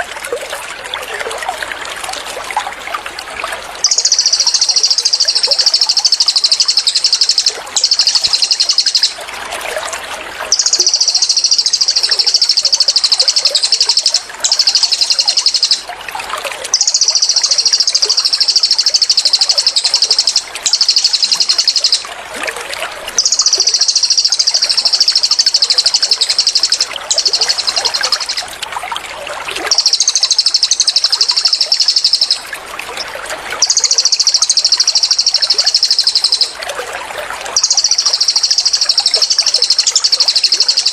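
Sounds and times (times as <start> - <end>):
running water trickling: 0.0 - 40.9
songbird rattling trill: 3.8 - 9.2, 10.5 - 15.9, 16.7 - 22.1, 23.2 - 28.5, 29.6 - 32.5, 33.6 - 36.6, 37.6 - 40.9.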